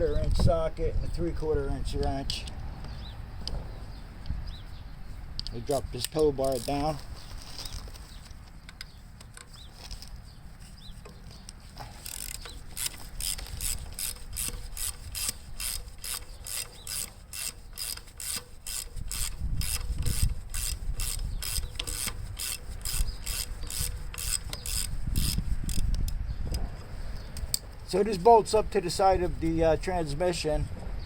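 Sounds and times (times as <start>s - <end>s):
socket ratchet clicking: 5.4s - 7.0s, 11.1s - 26.1s.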